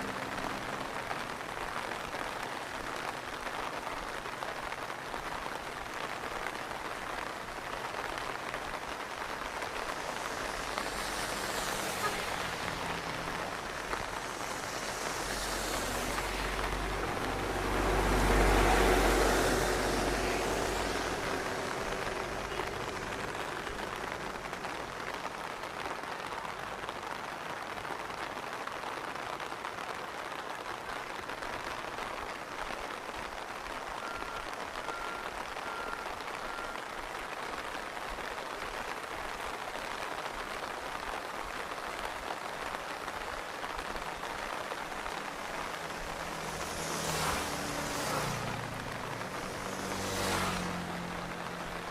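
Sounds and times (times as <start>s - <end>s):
steady rain falling: 0.0s - 51.9s
motor vehicle passing: 9.8s - 25.2s, 45.2s - 51.8s.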